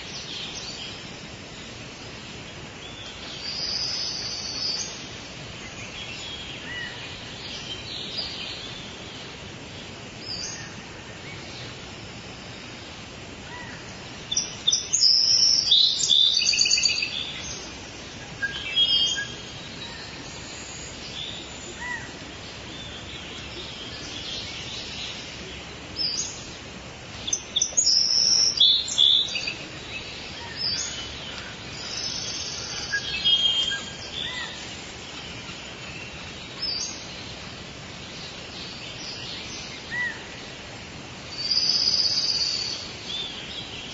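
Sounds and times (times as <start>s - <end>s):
birds chirping and singing: 0.0s - 40.6s
steady background hiss: 0.0s - 43.9s.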